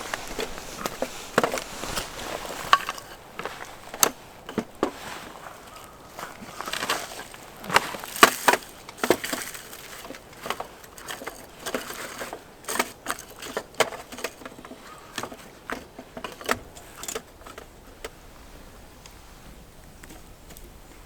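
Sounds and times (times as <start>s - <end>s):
campfire crackling: 0.0s - 11.7s.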